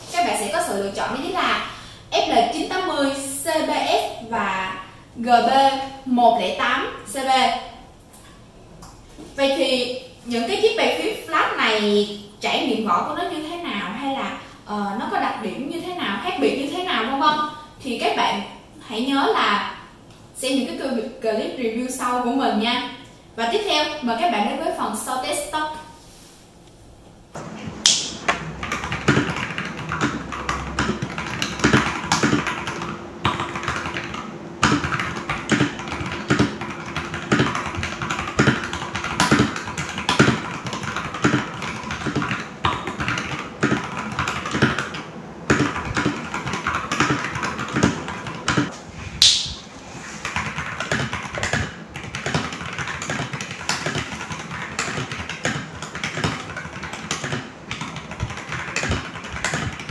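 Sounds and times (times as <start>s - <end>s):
mechanical keyboard typing: 27.9s - 48.7s, 50.2s - 59.9s.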